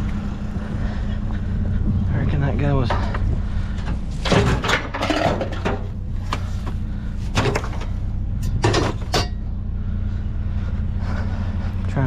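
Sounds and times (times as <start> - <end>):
vehicle engine idling: 0.0 - 12.0
knocks and clatters of handling: 2.8 - 9.4.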